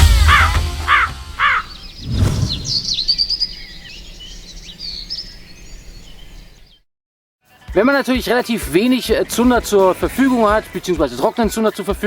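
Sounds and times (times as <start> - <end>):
crow cawing: 0.3 - 1.8
songbirds chirping: 1.4 - 6.8
single thud: 1.9 - 3.4.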